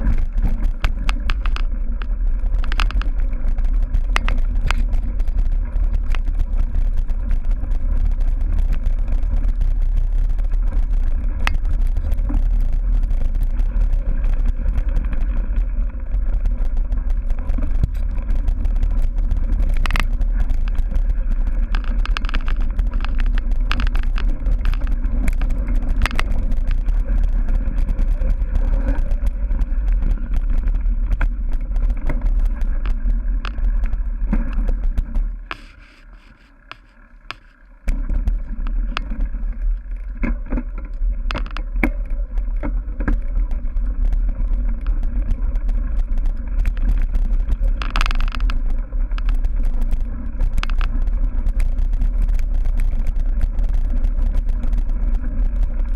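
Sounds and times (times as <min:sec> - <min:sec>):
bike clattering over bumps: 0:00.0 - 0:35.7
wind rumbling on microphone: 0:00.0 - 0:55.9.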